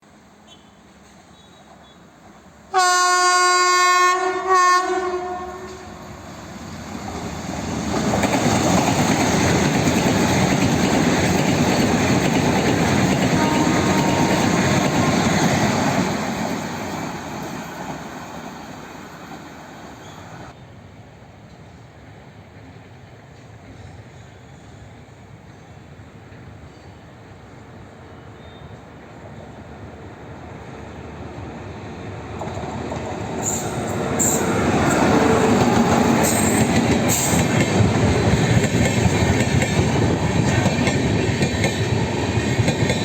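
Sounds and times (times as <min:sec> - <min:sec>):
locomotive horn blasts: 0:02.7 - 0:06.0, 0:13.3 - 0:15.4
train wheels clickety-clack: 0:06.8 - 0:20.6, 0:32.1 - 0:43.0.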